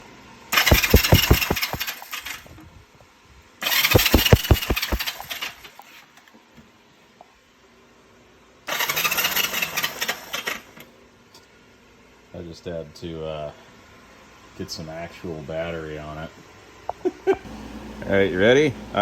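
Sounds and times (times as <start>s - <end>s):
electric starter cranking engine: 0.6s - 2.6s, 3.6s - 5.8s, 8.7s - 10.7s.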